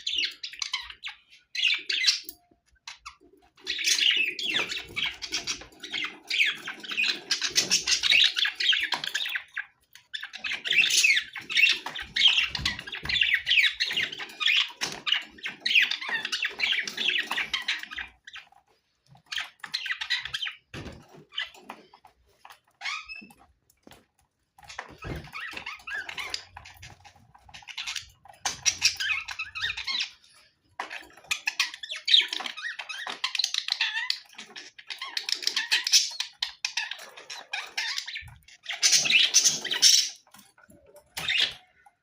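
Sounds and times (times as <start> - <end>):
budgerigars chattering: 0.0 - 18.5, 25.0 - 40.3.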